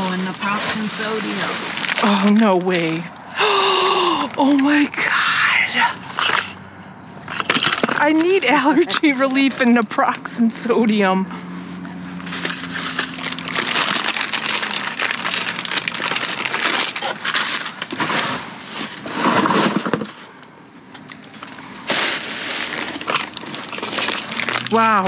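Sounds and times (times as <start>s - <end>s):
cardboard and plastic crunching: 0.0s - 3.6s, 7.2s - 9.9s, 12.2s - 25.0s.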